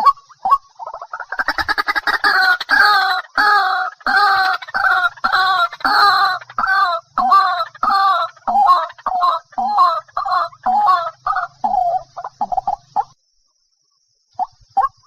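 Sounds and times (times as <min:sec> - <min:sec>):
waterhen calling: 0:00.0 - 0:13.2.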